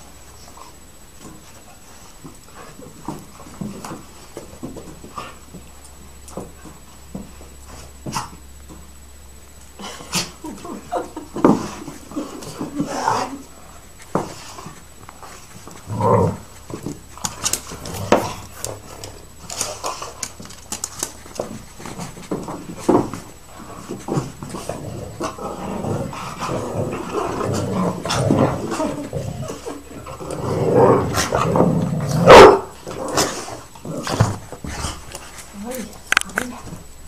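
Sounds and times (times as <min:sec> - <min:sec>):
dogs growling while playing: 0:09.8 - 0:36.8
dog barking: 0:32.3 - 0:32.7.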